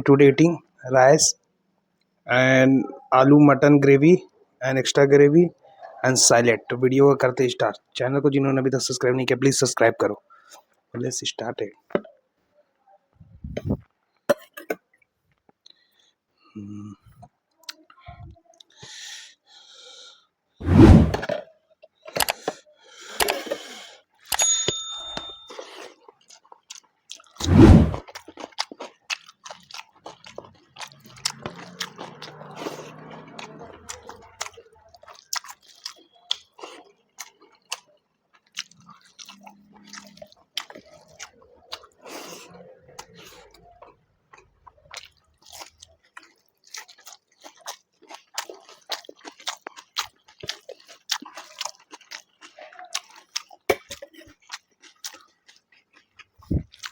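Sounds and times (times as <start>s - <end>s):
chewing and crunching: 21.2s - 56.9s
ringing clink: 24.3s - 25.5s.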